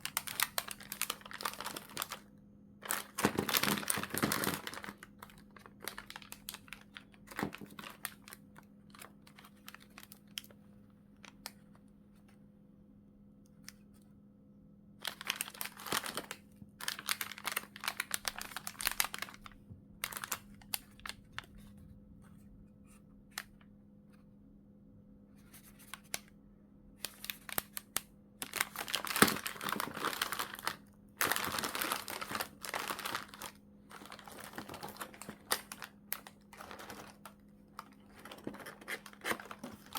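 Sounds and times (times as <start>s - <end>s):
plastic packaging crinkling: 0.0s - 10.6s, 15.0s - 21.8s, 27.0s - 39.9s.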